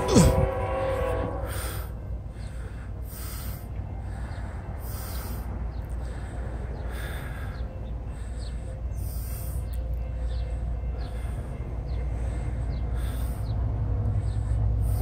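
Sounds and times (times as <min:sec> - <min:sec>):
distant freight train rumble: 0:00.0 - 0:15.0.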